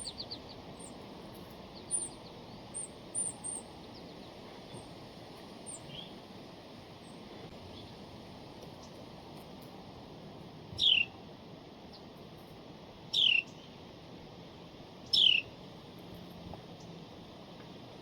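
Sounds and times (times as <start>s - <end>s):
songbird calling: 0.0s - 5.0s, 5.6s - 6.2s, 10.8s - 11.2s, 13.1s - 13.7s, 15.0s - 15.6s.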